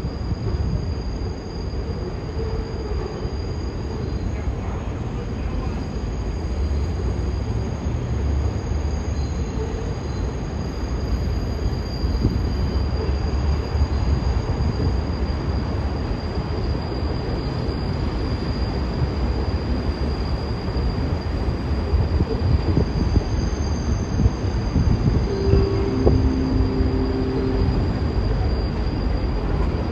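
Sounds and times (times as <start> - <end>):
subway train rumble: 0.0 - 29.9
faint high-pitched whine: 25.3 - 29.9.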